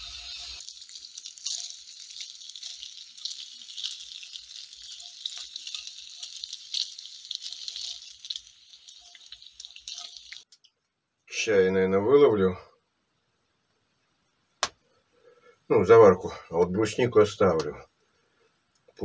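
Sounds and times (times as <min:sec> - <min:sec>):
meat sizzling in a frying pan: 0:00.0 - 0:10.5.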